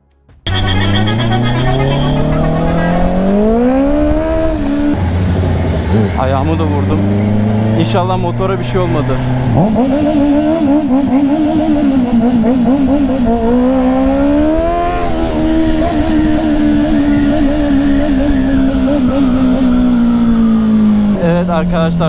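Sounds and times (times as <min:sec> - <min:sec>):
motorcycle engine running: 0:00.5 - 0:22.0
wind rumble on microphone: 0:02.8 - 0:06.3.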